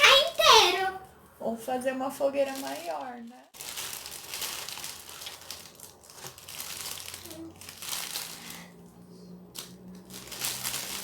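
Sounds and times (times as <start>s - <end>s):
cellophane crinkling and rustling: 2.4s - 8.8s, 9.5s - 11.0s.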